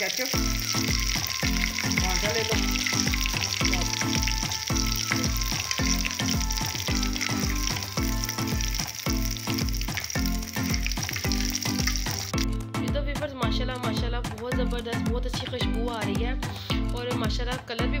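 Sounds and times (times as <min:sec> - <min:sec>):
patties sizzling in oil: 0:00.0 - 0:12.5
background music with beat: 0:00.4 - 0:18.0.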